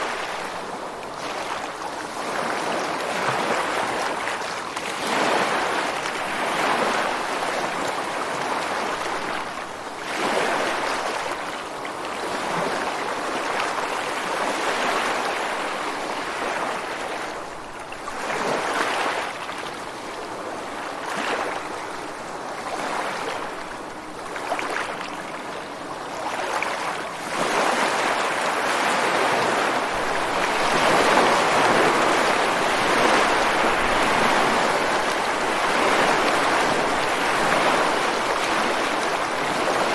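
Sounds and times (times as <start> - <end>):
waves breaking on rocks: 26.5 - 39.9.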